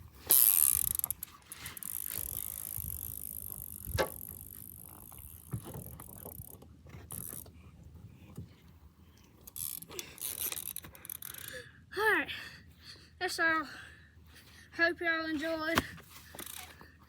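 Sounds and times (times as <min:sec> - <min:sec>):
mini bike rolling and rattling: 0:00.0 - 0:07.6, 0:09.4 - 0:11.6, 0:15.6 - 0:16.9.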